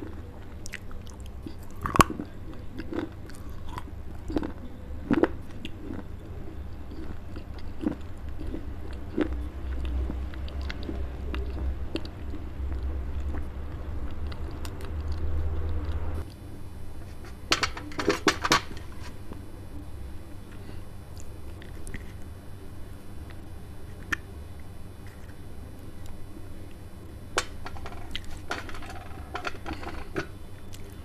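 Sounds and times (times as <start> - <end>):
chewing gritty crunches: 0.0 - 16.5
clay piece cracking on metal: 27.4 - 30.3.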